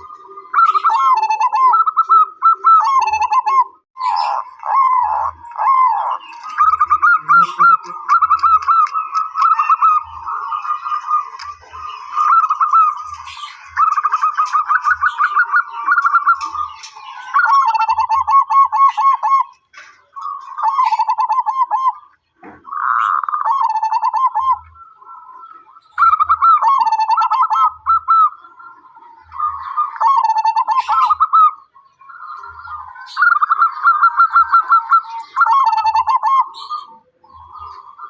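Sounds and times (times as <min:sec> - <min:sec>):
doves cooing: 0:00.0 - 0:38.0.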